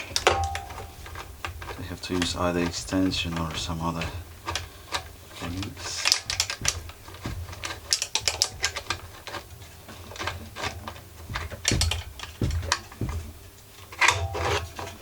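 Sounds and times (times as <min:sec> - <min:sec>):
metal tool knocks: 0:00.2 - 0:01.2, 0:11.3 - 0:13.3.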